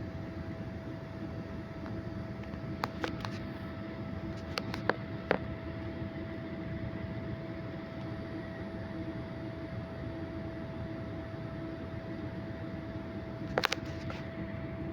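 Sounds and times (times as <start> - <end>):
constant hum: 0.0 - 14.9.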